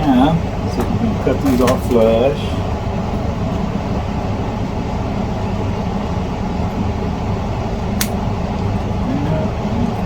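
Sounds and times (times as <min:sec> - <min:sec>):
low background hum: 0:00.0 - 0:10.0
flush cutters snipping: 0:08.0 - 0:08.2.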